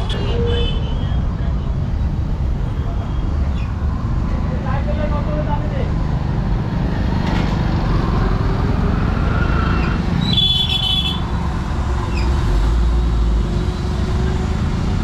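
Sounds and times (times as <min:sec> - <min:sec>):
traffic engines rumbling: 0:00.0 - 0:15.0.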